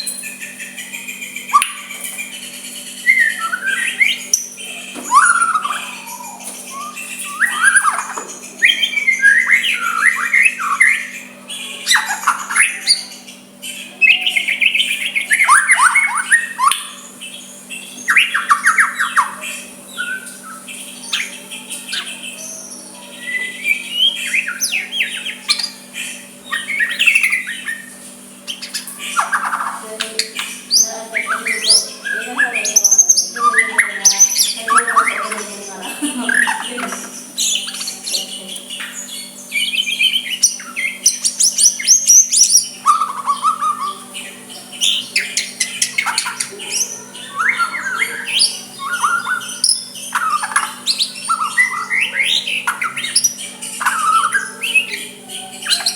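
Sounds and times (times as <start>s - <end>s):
faint steady hum: 0.0s - 55.9s
songbird whistling: 0.0s - 55.9s.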